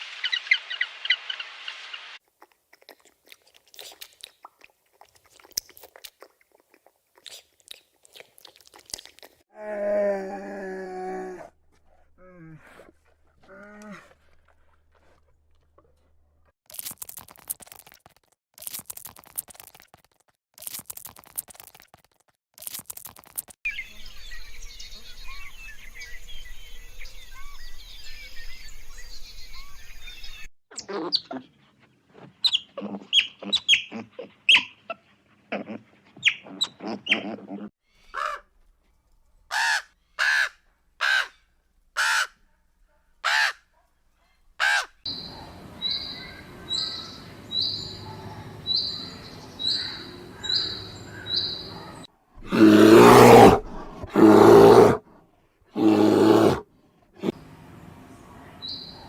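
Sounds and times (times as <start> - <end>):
animal chewing with crunching: 2.2 - 9.4, 12.9 - 23.6
scratchy crackling noise: 16.7 - 23.6
many birds chirping: 23.7 - 30.5, 45.1 - 52.0.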